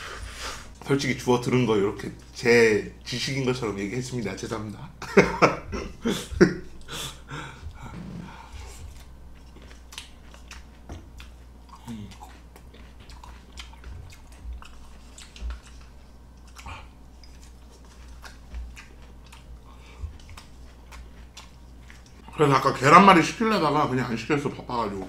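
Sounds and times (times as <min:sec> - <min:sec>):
man chewing food: 0:02.1 - 0:03.1, 0:05.0 - 0:22.4.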